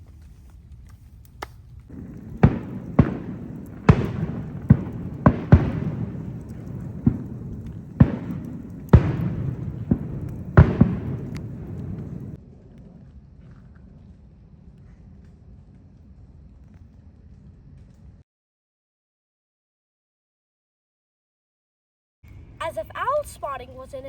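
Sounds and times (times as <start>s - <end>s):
sharp echoing bangs: 1.9s - 12.4s.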